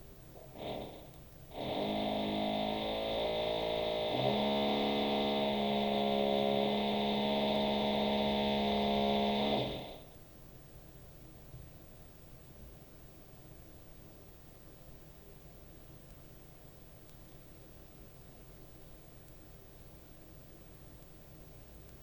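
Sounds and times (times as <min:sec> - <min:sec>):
electric drill through ceiling: 0:00.4 - 0:10.1.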